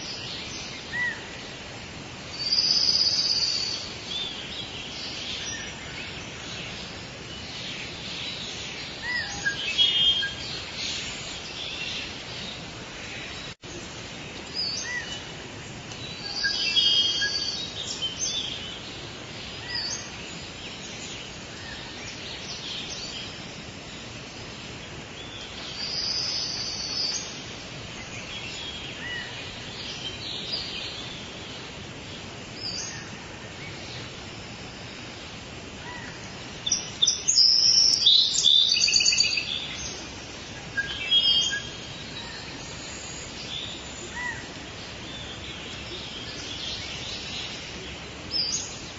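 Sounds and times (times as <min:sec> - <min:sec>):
birds singing and calling: 0:00.0 - 0:48.9
steady hiss: 0:00.0 - 0:48.9.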